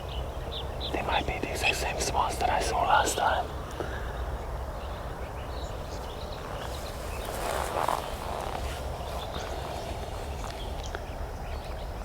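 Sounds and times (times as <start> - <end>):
rustle: 6.4 - 11.7.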